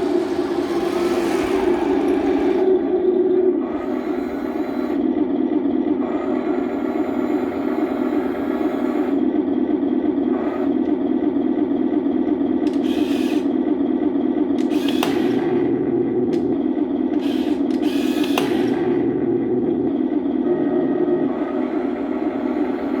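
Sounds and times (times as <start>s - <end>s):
simulated tank engine drone: 0.0s - 23.0s
sharp click: 12.6s - 13.4s, 14.6s - 15.4s.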